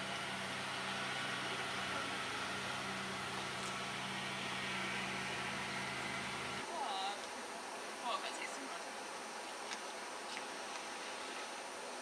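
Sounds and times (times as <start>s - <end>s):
vehicle engine idling: 0.0s - 6.7s.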